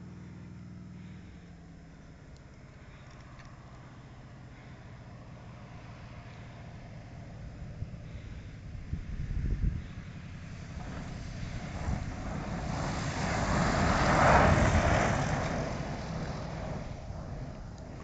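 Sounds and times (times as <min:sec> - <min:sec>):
propeller aircraft passing: 0:00.0 - 0:18.0
wind rumbling on microphone: 0:07.6 - 0:18.0.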